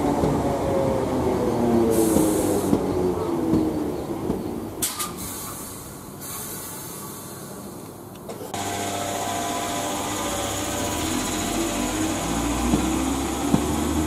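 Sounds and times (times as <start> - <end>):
train rumble: 0.0 - 14.0
electric train whine: 8.6 - 14.0.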